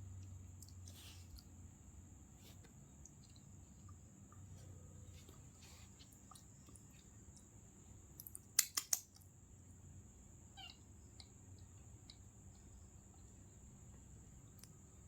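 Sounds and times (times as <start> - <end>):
sharp clicks: 8.2 - 9.2.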